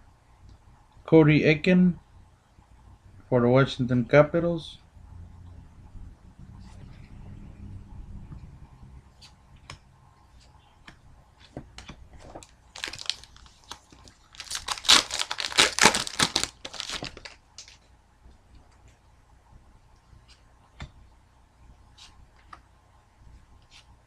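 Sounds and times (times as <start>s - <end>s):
foil wrapper crinkling and tearing: 12.4s - 17.8s.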